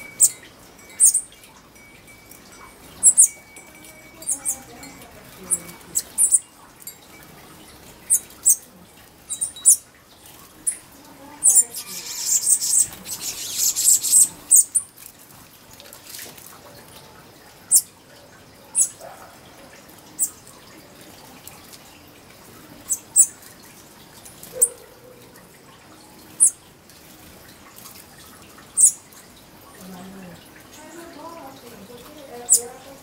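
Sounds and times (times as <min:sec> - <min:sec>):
small bird high chirps: 0:00.0 - 0:01.4, 0:03.0 - 0:06.6, 0:08.0 - 0:08.7, 0:09.3 - 0:09.9, 0:11.4 - 0:14.9, 0:18.8 - 0:19.0, 0:20.2 - 0:20.4, 0:22.9 - 0:23.4, 0:26.4 - 0:26.6, 0:28.8 - 0:29.0, 0:32.4 - 0:32.8.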